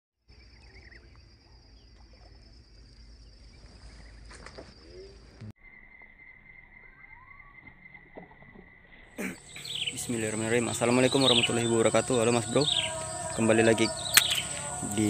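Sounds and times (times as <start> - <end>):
lower insect drone: 0.3 - 15.0
high insect drone: 0.4 - 15.0
short chirps: 13.9 - 14.8.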